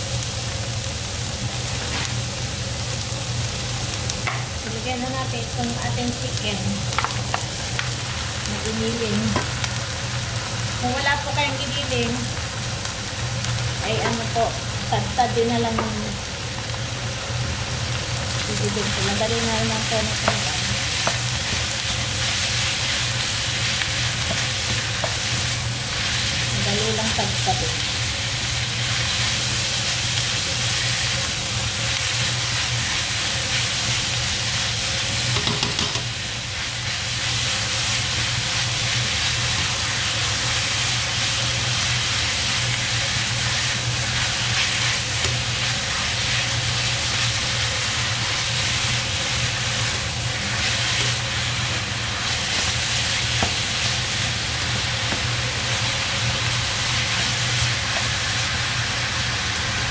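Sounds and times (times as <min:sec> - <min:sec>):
food sizzling in a wok: 0:00.0 - 0:59.9
spatula stirring in a wok: 0:18.4 - 0:59.7.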